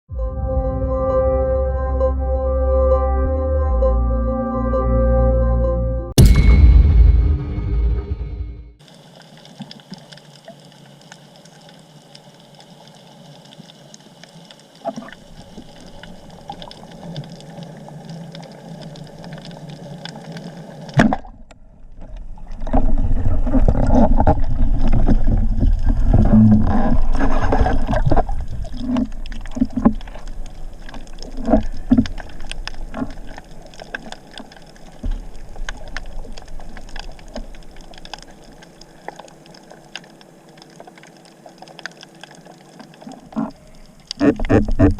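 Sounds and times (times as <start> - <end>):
sharp knock: 6.2 - 8.8
water rushing and gurgling: 22.2 - 44.9
sharp clicks underwater: 27.2 - 44.9.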